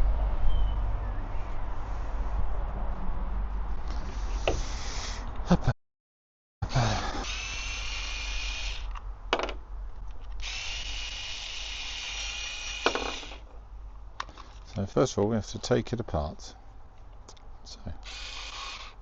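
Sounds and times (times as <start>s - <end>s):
electric power tool whining: 7.1s - 9.0s, 10.4s - 13.4s, 18.0s - 19.0s.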